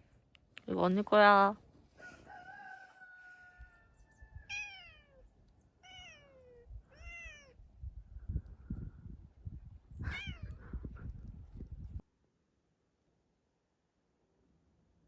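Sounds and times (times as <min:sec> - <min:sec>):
cat meowing: 0:04.5 - 0:07.6, 0:10.0 - 0:10.6.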